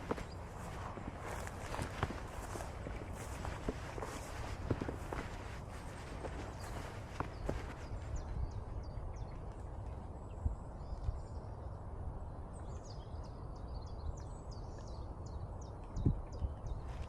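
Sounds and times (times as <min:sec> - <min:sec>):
small birds chirping: 0:00.0 - 0:11.6, 0:12.6 - 0:17.0
low outdoor rumble: 0:00.0 - 0:12.8.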